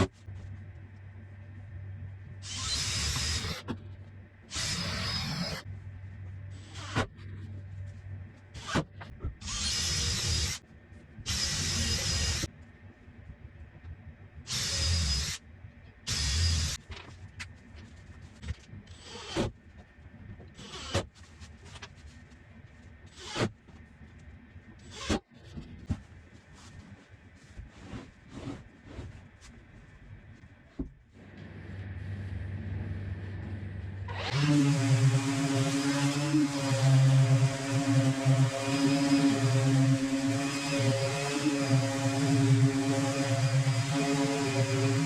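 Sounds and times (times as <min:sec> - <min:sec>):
low hum: 0:00.1 - 0:08.6, 0:28.6 - 0:45.0
power drill whining: 0:02.4 - 0:03.6, 0:04.5 - 0:05.6, 0:09.4 - 0:10.6, 0:11.3 - 0:12.5, 0:14.5 - 0:15.4, 0:16.1 - 0:16.8, 0:34.1 - 0:45.0.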